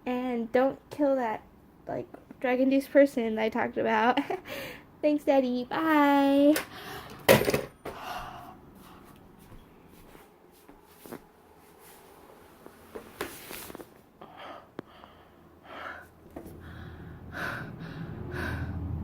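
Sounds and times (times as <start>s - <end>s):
person breathing faintly: 7.9s - 9.2s, 14.2s - 19.0s.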